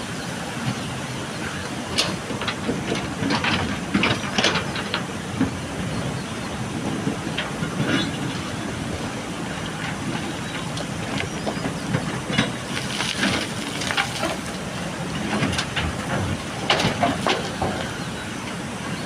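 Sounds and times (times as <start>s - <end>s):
diesel engine running: 0.0s - 19.0s
gravel and stones clattering: 9.6s - 18.1s.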